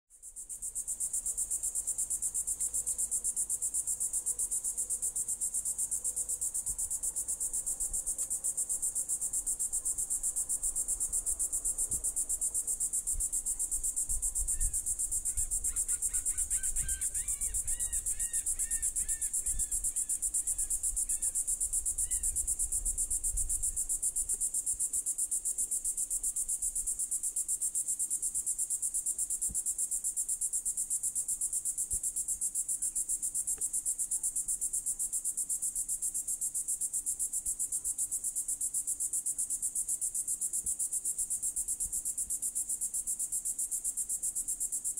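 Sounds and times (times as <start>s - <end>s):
cicadas buzzing: 0.2s - 31.8s.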